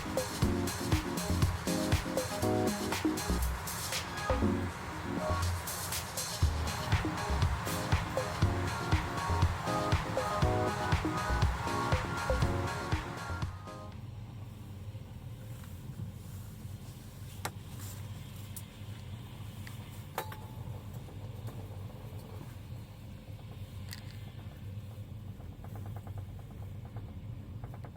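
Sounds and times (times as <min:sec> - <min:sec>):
passenger train rumbling: 0:00.0 - 0:13.4.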